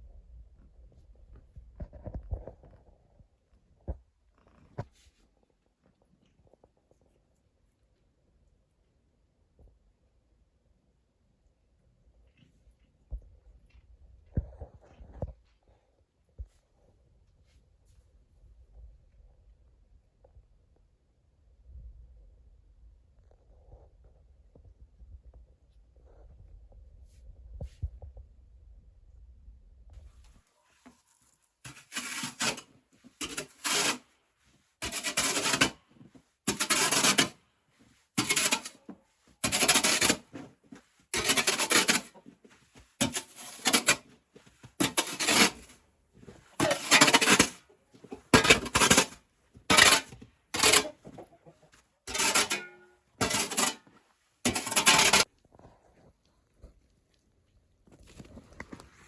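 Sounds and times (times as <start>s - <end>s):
tool scraping through snow: 31.7s - 34.1s, 34.8s - 35.8s, 36.4s - 37.4s, 38.1s - 42.2s, 43.0s - 45.8s, 46.5s - 47.6s, 48.2s - 51.0s, 52.1s - 53.9s, 54.5s - 55.3s.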